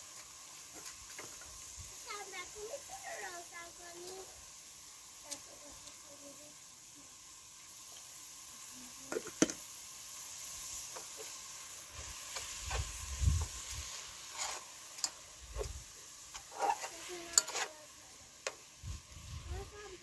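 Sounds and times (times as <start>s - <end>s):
food sizzling in a pan: 0.0s - 20.0s
stirring clicks and scrapes: 14.3s - 17.8s.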